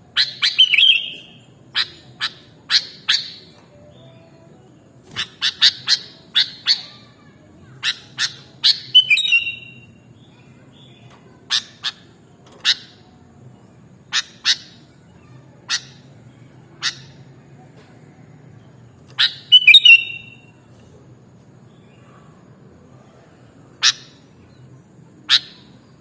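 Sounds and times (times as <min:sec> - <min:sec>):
bird chip notes: 0:00.2 - 0:16.2.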